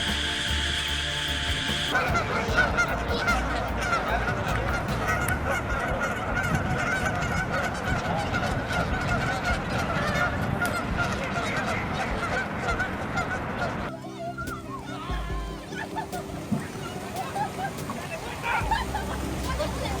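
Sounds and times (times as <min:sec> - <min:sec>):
flock of geese honking: 0:00.0 - 0:15.0.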